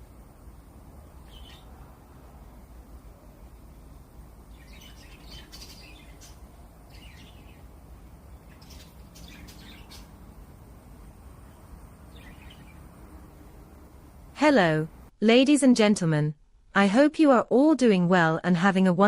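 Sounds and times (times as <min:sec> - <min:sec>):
steady low hum: 0:00.0 - 0:15.2
budgerigars chirping: 0:01.3 - 0:01.7, 0:04.6 - 0:07.6, 0:08.4 - 0:10.2.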